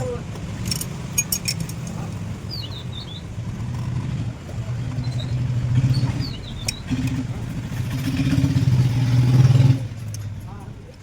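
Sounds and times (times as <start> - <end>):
low engine hum: 0.0 - 11.0
bird chirps: 2.5 - 3.3, 5.0 - 6.9.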